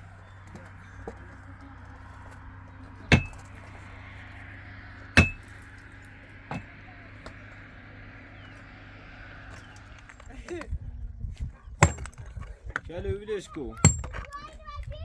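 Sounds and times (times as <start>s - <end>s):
steady low hum: 0.0s - 12.4s
sharp metallic strikes ringing: 5.1s - 7.0s.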